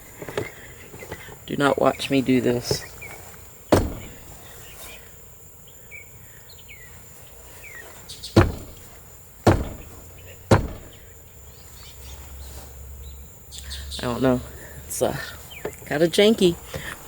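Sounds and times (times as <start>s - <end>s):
kicks knocking a metal stand: 3.7s - 4.4s, 8.4s - 11.1s.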